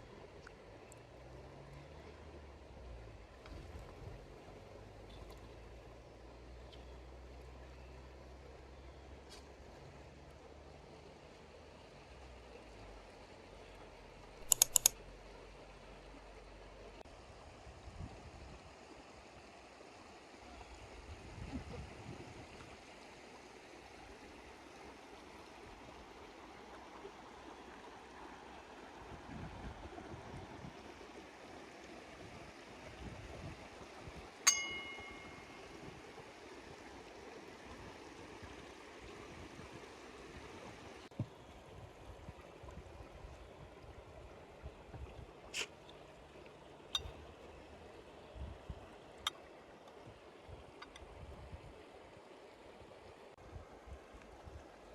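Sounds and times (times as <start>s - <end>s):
river water flowing: 0.0s - 21.4s, 22.0s - 54.9s
metallic clink: 14.4s - 14.9s, 34.5s - 35.6s
sharp clicks: 14.4s - 15.0s.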